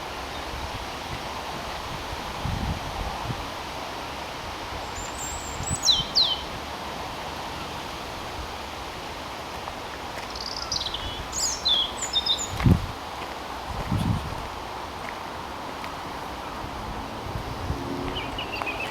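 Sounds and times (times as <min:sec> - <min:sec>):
background hiss: 0:00.0 - 0:18.9
songbird singing: 0:04.8 - 0:06.6, 0:10.3 - 0:12.8, 0:16.2 - 0:18.9.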